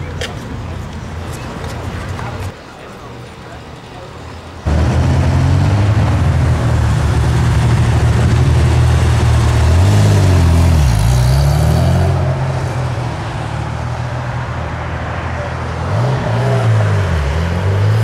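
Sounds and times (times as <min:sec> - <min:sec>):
car engine pulling away: 0:04.7 - 0:13.0.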